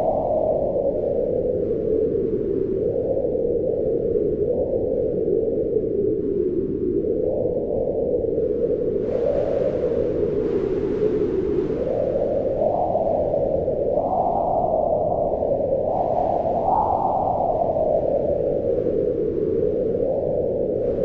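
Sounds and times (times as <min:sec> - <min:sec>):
wind howling: 0:08.3 - 0:21.0.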